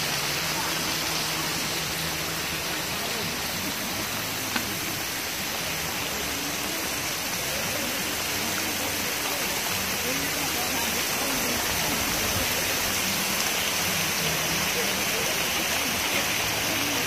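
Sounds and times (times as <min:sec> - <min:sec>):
rain falling on water: 0:00.0 - 0:17.0.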